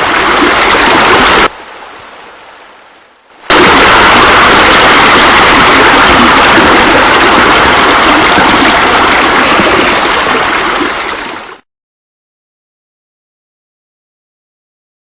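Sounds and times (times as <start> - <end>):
rush of falling water: 0.0 - 11.6.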